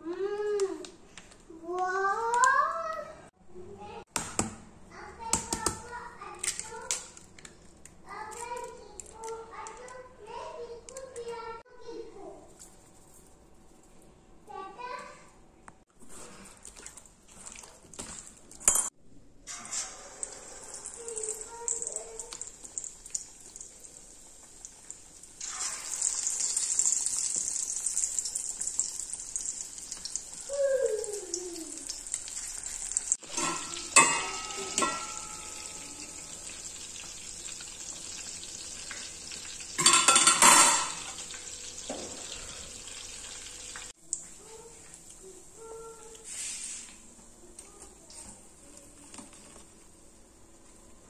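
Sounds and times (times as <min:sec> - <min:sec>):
chicken deep-frying in oil: 0:19.5 - 0:46.2
metal utensil clinking in pan: 0:33.2 - 0:36.3, 0:39.8 - 0:41.3.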